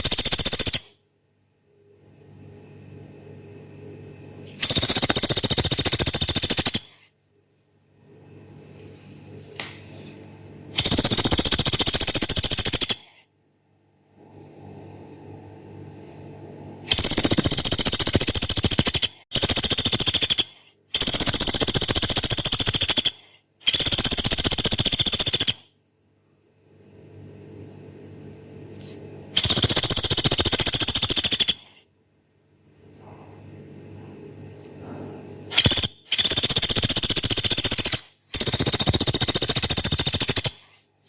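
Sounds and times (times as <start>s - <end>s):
woodpecker rattling: 0.0s - 0.9s, 4.6s - 7.0s, 10.8s - 13.1s, 16.9s - 25.6s, 29.4s - 31.7s, 35.5s - 40.7s.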